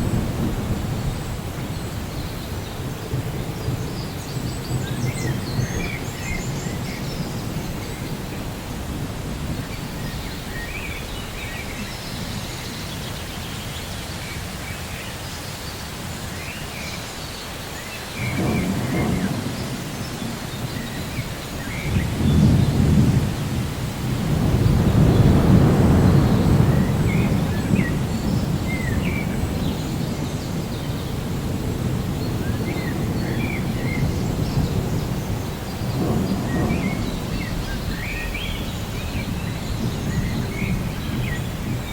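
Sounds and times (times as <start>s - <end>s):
rolling thunder: 0.0s - 12.8s, 18.2s - 41.9s
rain hissing: 0.0s - 41.9s.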